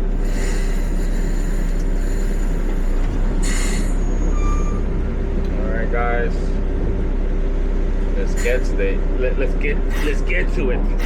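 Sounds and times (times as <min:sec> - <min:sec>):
truck diesel engine rumbling: 0:00.0 - 0:11.0
brief high squeal: 0:03.4 - 0:04.9.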